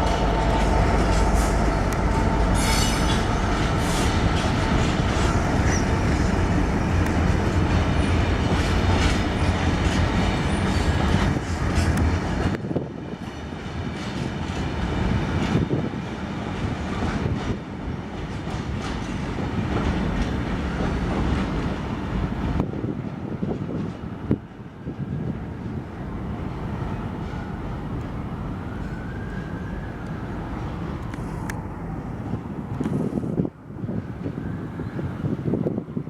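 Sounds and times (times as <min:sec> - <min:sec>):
heavy low rumble: 0:00.0 - 0:09.0
train wheels clattering over rail joints: 0:00.0 - 0:25.1.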